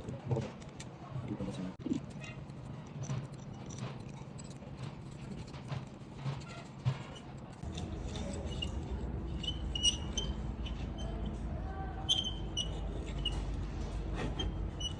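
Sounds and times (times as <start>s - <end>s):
low machine hum: 7.5s - 14.9s
short high squeaks: 7.7s - 11.4s, 12.0s - 14.9s.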